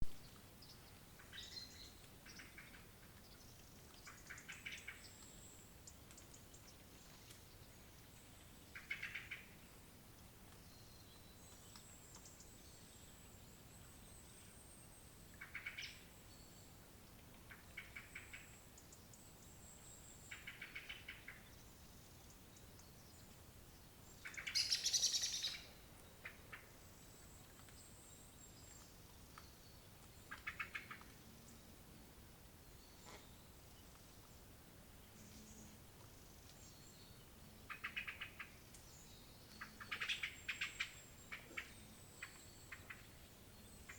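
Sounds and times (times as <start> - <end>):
bird ticking alarm calls: 24.2 - 26.7, 30.2 - 31.1, 37.7 - 38.5, 39.6 - 43.2.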